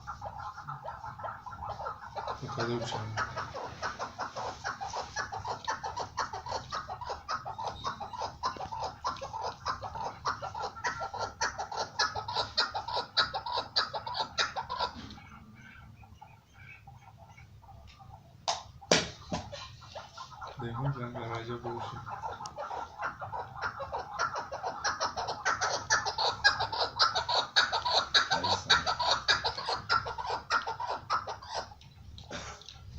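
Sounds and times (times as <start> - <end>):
partridge calling: 0.0 - 31.8
partridge calling harsh notes: 20.2 - 31.8.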